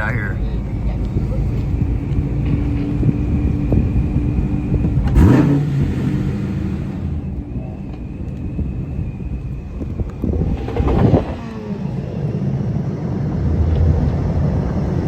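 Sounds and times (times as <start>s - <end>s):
car engines running: 0.0s - 15.0s
car engine revving hard: 1.1s - 7.4s, 9.9s - 15.0s.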